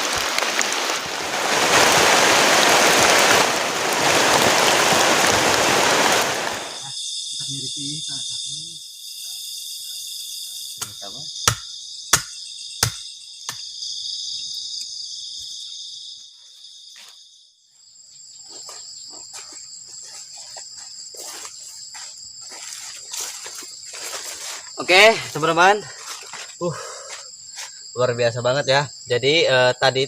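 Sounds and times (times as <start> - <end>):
crickets trilling: 0.0 - 30.0
high thin insect trill: 0.2 - 29.9
sharp knocks: 10.8 - 13.6.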